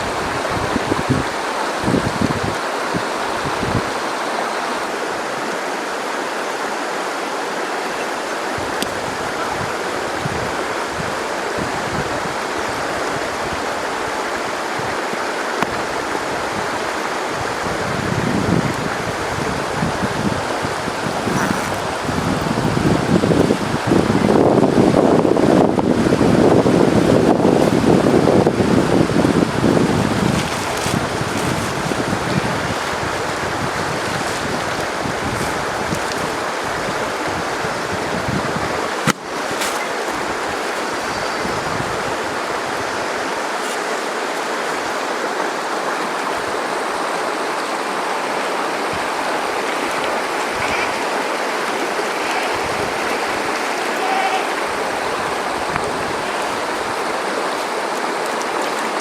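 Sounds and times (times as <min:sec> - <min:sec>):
low wind rumble: 0:00.0 - 0:04.2, 0:15.8 - 0:43.5
river water rushing: 0:00.0 - 0:59.0.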